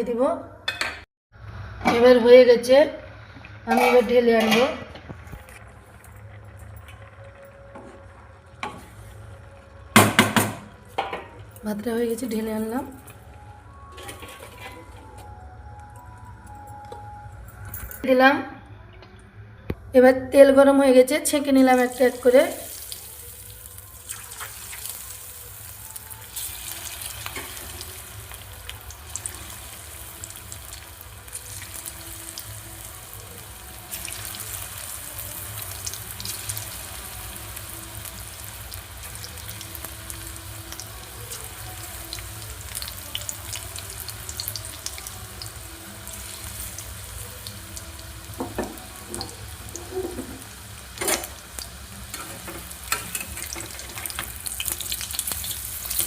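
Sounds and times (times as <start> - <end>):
chicken deep-frying in oil: 2.7 - 10.8, 21.7 - 56.0.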